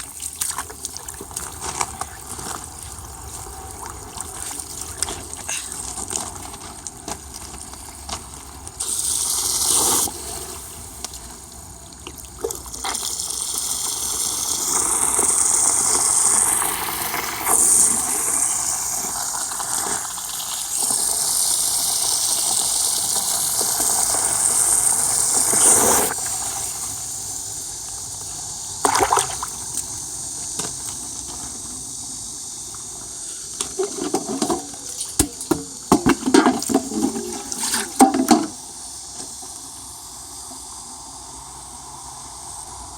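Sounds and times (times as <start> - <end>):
water pouring into a jar: 0.0 - 11.0, 11.7 - 26.8, 28.8 - 29.9, 33.8 - 38.6.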